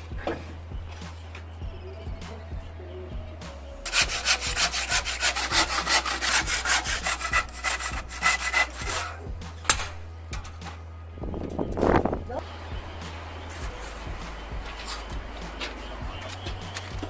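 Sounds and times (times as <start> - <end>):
hand tool scraping: 3.8 - 9.2.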